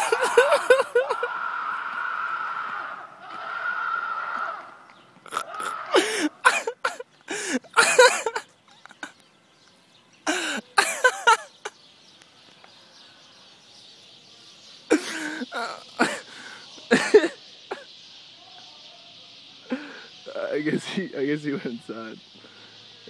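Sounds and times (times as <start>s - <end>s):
man yelling and shrieking: 5.3s - 7.0s
steady high hiss: 5.3s - 23.0s.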